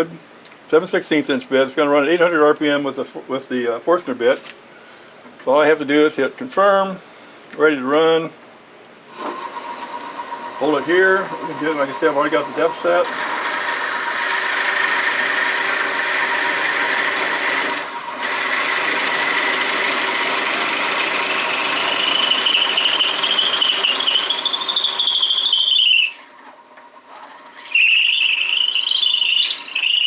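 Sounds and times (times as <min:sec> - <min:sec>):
drill bit squealing: 0:09.1 - 0:26.3, 0:27.0 - 0:30.0
machine running: 0:09.1 - 0:30.0.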